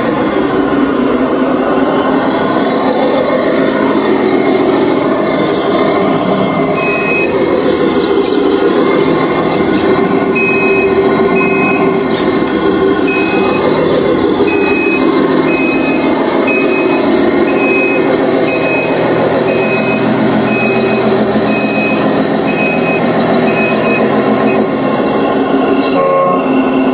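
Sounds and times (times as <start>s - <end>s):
truck engine running: 0.0s - 26.9s
reversing alarm beeping: 6.7s - 7.8s, 9.1s - 25.0s, 25.8s - 26.9s.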